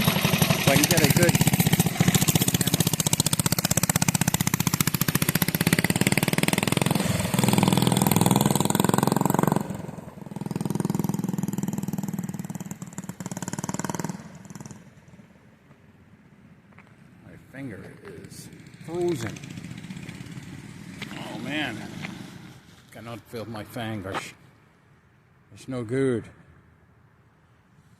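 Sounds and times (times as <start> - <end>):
mini bike engine revving: 0.0 - 15.0, 18.2 - 22.8.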